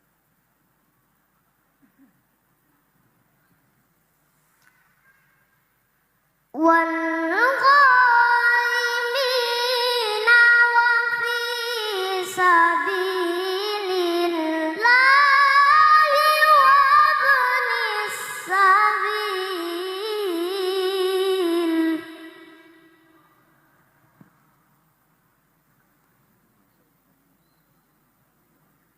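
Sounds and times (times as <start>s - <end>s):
child reciting melodically: 6.6s - 23.0s.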